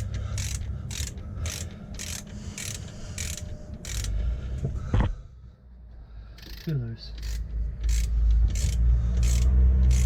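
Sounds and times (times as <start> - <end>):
ratchet wrench clicking: 0.0 - 4.2, 6.4 - 10.0.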